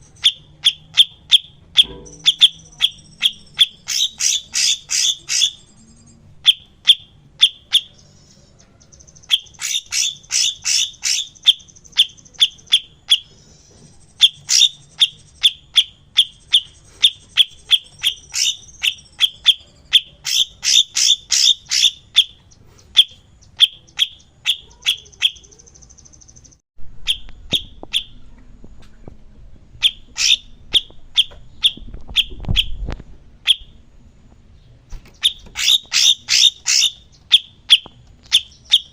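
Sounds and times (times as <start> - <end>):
bird chirping sharply: 0.0 - 28.2, 29.8 - 32.8, 35.1 - 38.9
thin buzzy bird trills: 0.0 - 28.5, 29.8 - 34.0, 34.6 - 38.9
low rumble: 26.8 - 34.9.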